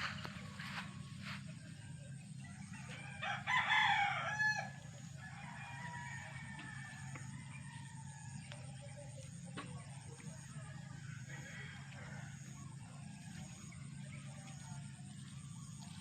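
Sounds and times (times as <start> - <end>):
steady low hum: 0.0 - 16.0
rooster crowing: 2.6 - 8.4, 11.1 - 12.7.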